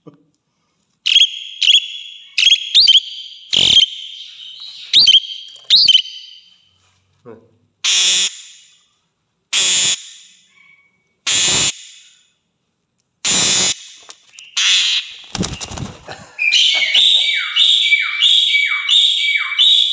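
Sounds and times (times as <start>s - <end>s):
starling harsh rasping calls: 1.1s - 6.5s, 7.8s - 8.5s, 9.5s - 11.8s, 13.2s - 18.6s
starling whistled notes: 1.1s - 6.6s, 16.4s - 19.9s.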